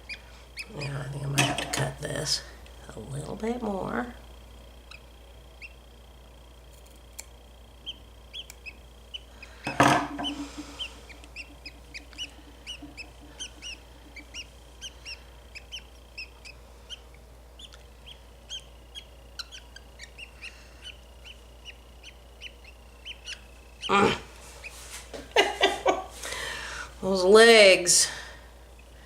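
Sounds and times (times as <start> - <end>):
budgie chirping: 0.0 - 1.1, 4.8 - 6.1, 7.7 - 24.8.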